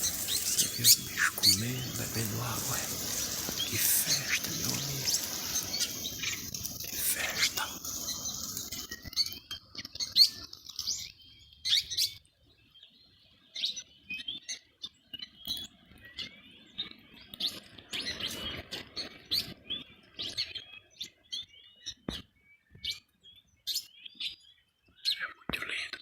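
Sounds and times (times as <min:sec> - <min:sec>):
small birds chirping: 0:00.0 - 0:18.8.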